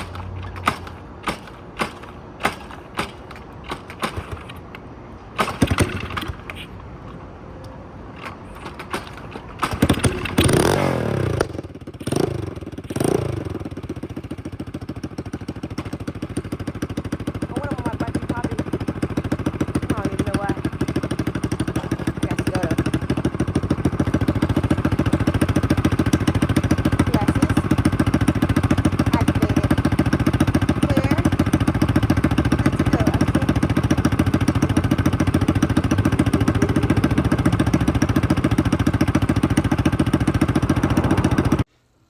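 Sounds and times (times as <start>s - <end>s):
dirt bike engine running: 9.0s - 41.7s.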